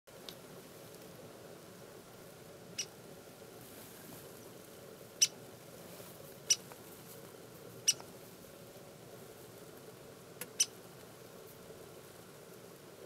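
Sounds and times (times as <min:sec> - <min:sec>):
woodpecker pik calls: 0:02.7 - 0:03.0, 0:05.2 - 0:05.4, 0:06.5 - 0:06.7, 0:07.8 - 0:08.1, 0:10.4 - 0:10.8.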